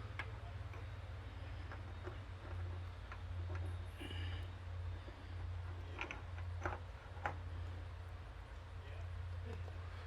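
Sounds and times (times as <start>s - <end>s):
light metallic clicks of parts: 0.0s - 7.7s
steady low hum: 0.0s - 10.0s.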